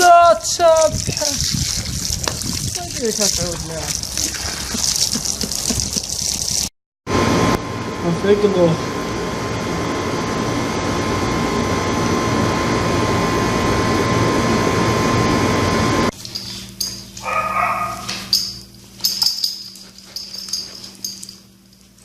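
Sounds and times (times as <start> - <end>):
animal whine: 17.2 - 18.1.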